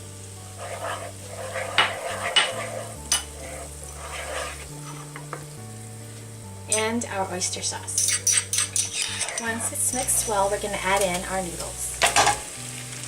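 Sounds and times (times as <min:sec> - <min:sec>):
sauce sizzling: 0:00.0 - 0:13.0
utensil scraping a pan: 0:00.5 - 0:05.4, 0:08.0 - 0:11.2
metal clinking on a pan: 0:07.9 - 0:10.1.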